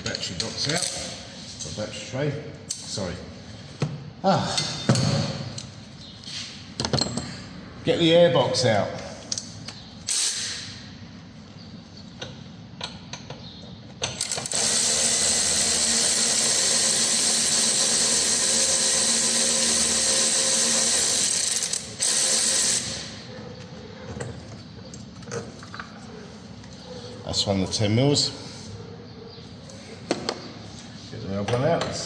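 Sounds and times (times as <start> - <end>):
power ratchet whirring: 10.0 - 10.8, 14.1 - 23.2.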